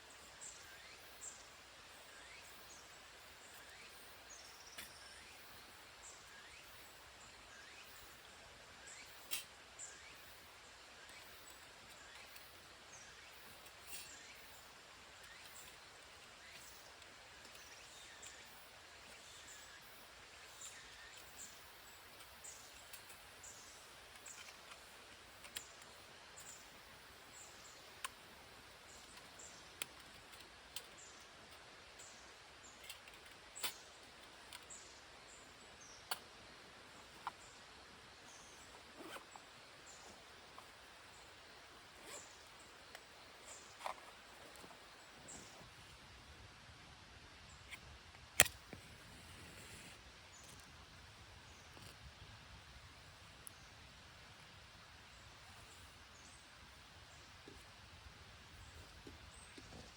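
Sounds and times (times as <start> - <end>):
sharp clicks: 48.4 - 48.8.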